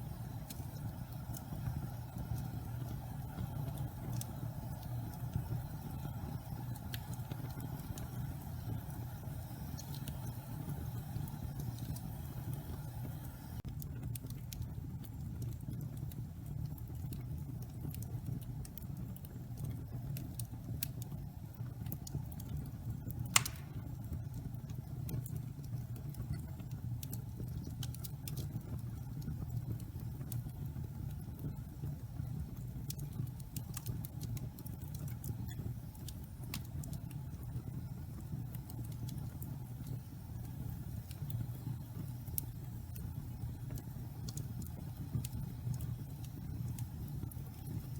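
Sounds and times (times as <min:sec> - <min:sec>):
fire crackling: 0:00.0 - 0:47.9
wood fire rushing: 0:23.3 - 0:24.0
sharp loud pop of fire: 0:23.4 - 0:23.9.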